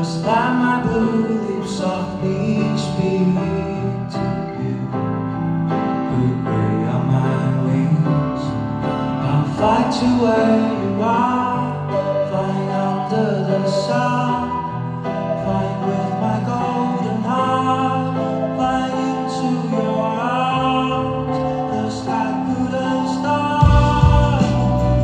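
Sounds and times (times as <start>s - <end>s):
guitar: 0.0s - 25.0s
live band playing pop-rock: 7.9s - 25.0s
bass and drums: 23.6s - 25.0s.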